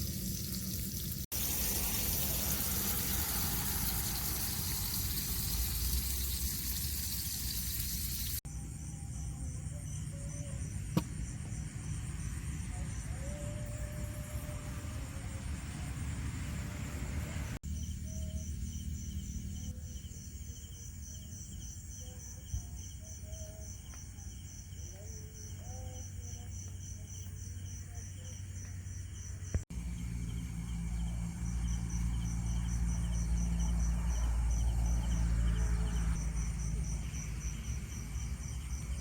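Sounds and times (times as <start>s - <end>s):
insects chirping: 0.0s - 39.0s.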